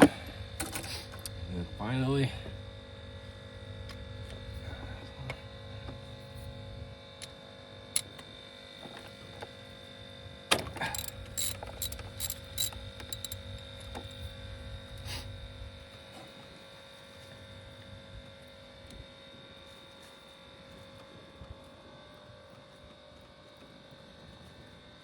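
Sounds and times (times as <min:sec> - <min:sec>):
steady hum: 0:00.0 - 0:20.1
socket wrench clicking: 0:10.8 - 0:13.4.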